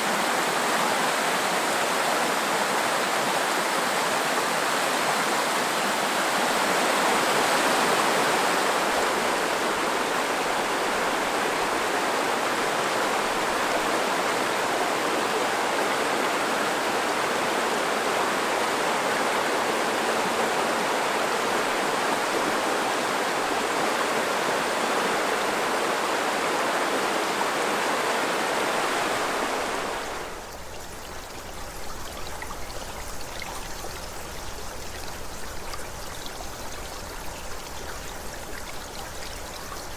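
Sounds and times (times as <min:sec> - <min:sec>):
mountain river rushing: 0:00.0 - 0:39.9.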